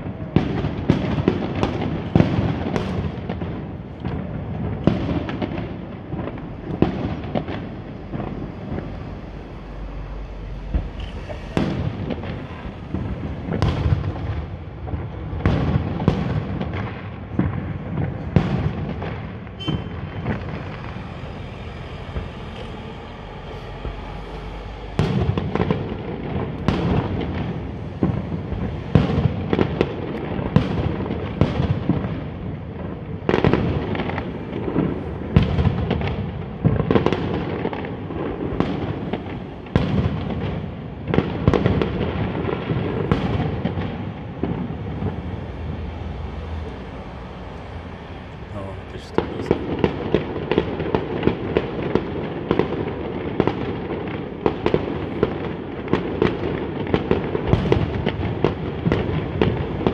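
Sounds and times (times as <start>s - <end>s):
fireworks bangs: 0.0s - 59.9s
low rumble: 3.7s - 51.8s
high whistle: 19.6s - 27.0s.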